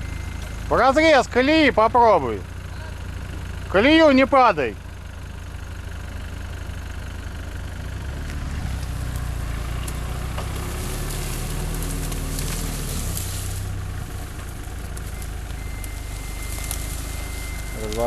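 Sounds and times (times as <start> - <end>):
suv engine revving under load: 6.4 - 18.0.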